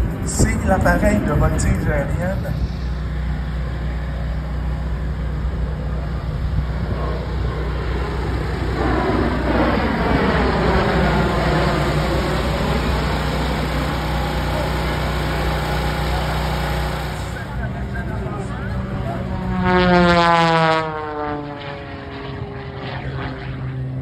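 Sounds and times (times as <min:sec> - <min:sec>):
propeller aircraft flying past: 0:00.0 - 0:24.0
steady low hum: 0:00.0 - 0:24.0.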